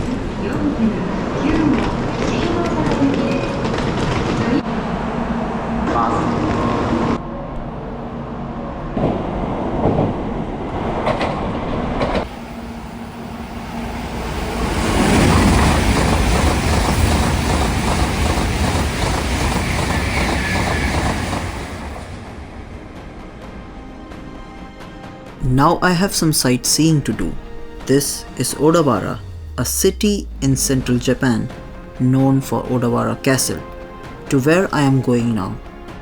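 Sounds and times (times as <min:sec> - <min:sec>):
high-speed train rushing past: 0:00.0 - 0:36.0
train knocks: 0:12.0 - 0:22.6.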